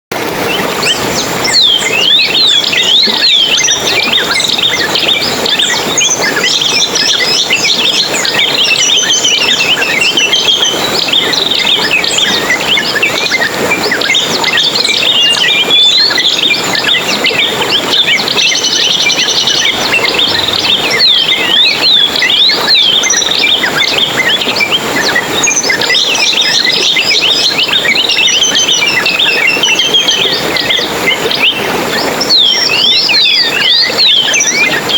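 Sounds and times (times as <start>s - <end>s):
songbirds chirping: 0.4s - 34.9s.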